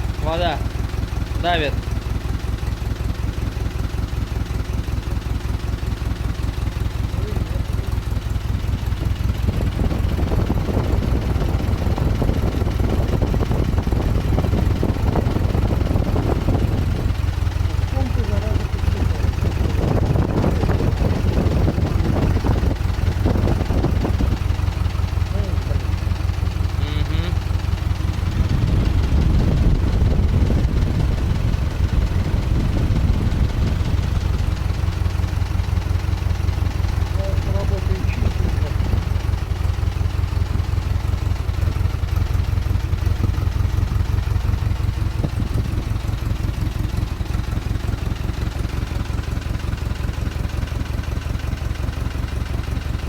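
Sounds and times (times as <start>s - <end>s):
engine idling: 0.0s - 53.0s.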